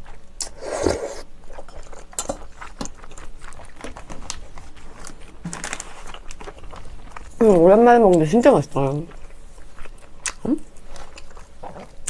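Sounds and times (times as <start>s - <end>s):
wet chewing smacks: 1.5s - 5.4s, 9.1s - 12.0s.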